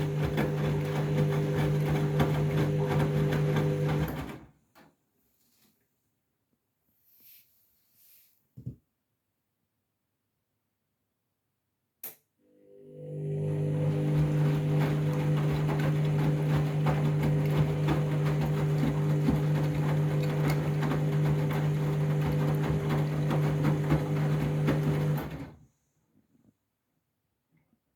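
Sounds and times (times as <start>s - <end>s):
washing machine hum: 0.0s - 4.6s, 12.6s - 25.7s.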